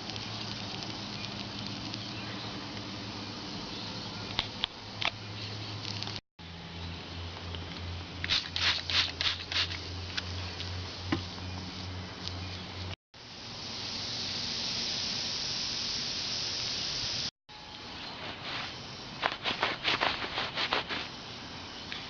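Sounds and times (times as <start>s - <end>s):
air hissing: 13.4s - 17.3s.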